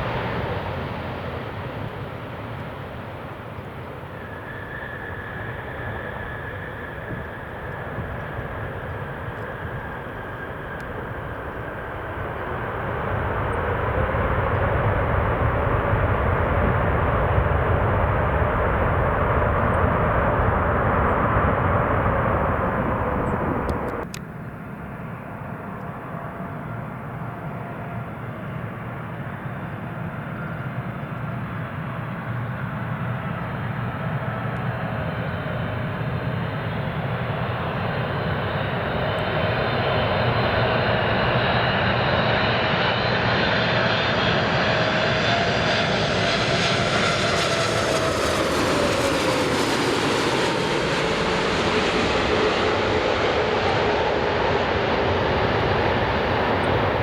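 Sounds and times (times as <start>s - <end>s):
jet engines whining overhead: 0.0s - 57.0s.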